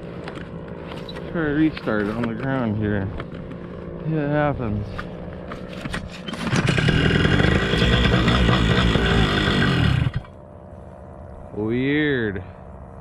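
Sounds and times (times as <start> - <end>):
paramotor engine running loudly: 0.0 - 13.0
engine starter clicks: 6.0 - 9.0.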